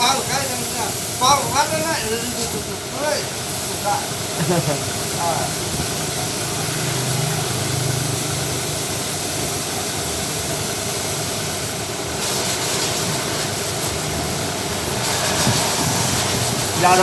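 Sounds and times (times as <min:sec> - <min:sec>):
small engine running: 0:03.8 - 0:10.0.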